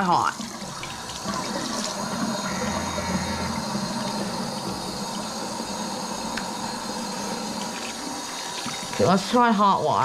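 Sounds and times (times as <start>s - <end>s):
tap running into a sink: 8.6s - 9.0s.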